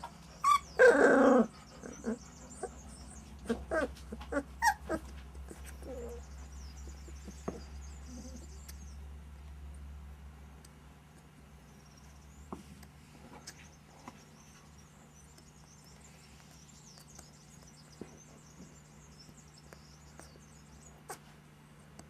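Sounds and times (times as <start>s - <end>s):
puppies squeaking: 0.0s - 8.9s
steady low hum: 0.0s - 22.0s.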